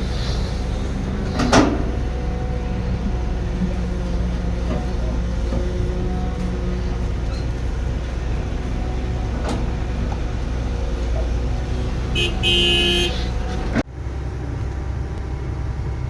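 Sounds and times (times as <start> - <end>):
heavy machine engine running: 0.0 - 16.0
short horn toot: 12.2 - 13.4.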